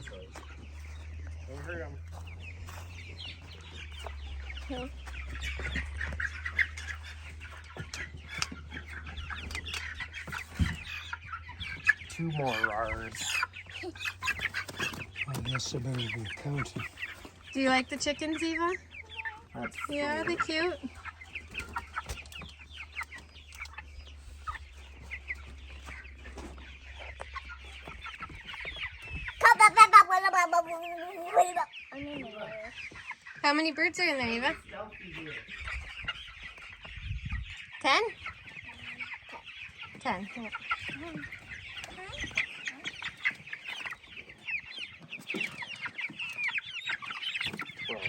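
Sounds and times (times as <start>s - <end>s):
chicks peeping: 0.0s - 48.0s
child's voice: 29.4s - 32.8s, 41.9s - 42.3s.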